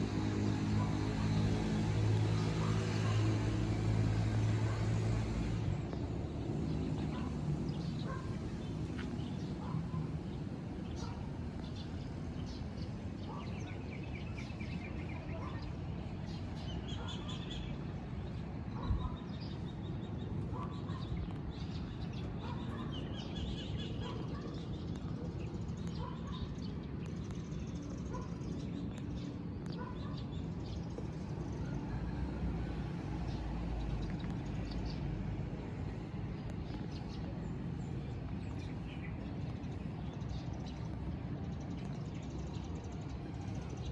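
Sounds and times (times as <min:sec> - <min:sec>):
birds chirping: 0:13.2 - 0:43.9.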